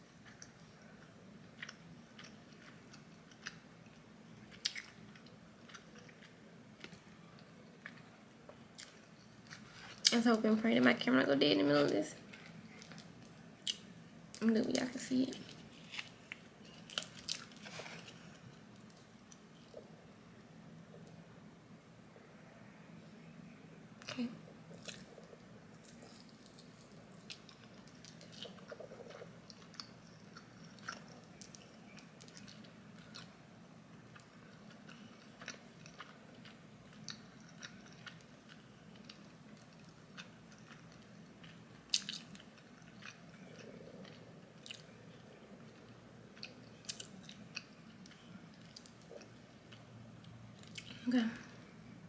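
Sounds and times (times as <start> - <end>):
faint steady hum: 0.0 - 52.0
person chewing: 1.6 - 10.1, 15.5 - 19.9, 24.7 - 33.4, 34.1 - 51.0.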